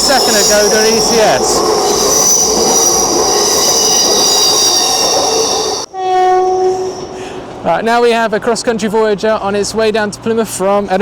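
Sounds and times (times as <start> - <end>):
train wheels squealing on rails: 0.0 - 7.7
train rumble: 0.0 - 10.3.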